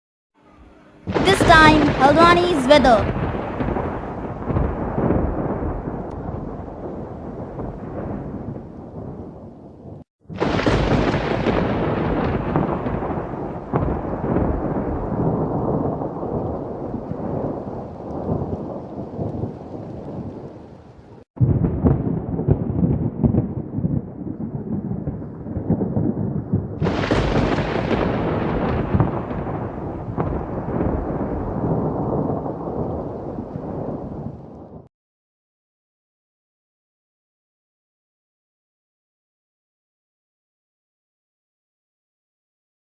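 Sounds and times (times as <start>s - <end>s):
loud thunder peal: 1.0s - 20.6s, 21.4s - 34.9s
rolling thunder: 1.0s - 34.9s.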